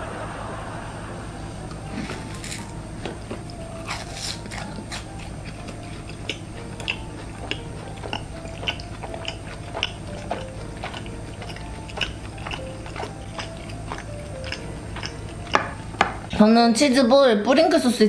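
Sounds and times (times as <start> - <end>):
biting and chewing crunchy food: 1.8 - 16.3.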